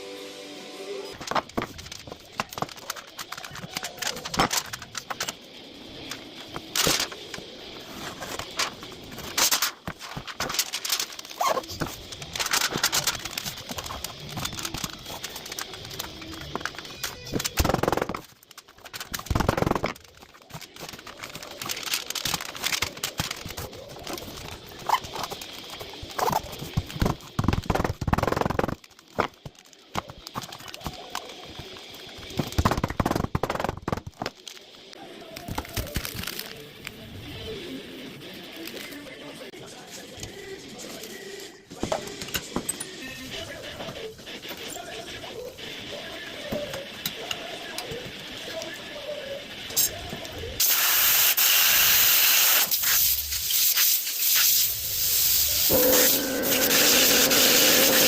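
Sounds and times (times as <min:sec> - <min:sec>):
knives and tools clicking and knocking: 0:01.2 - 0:34.8.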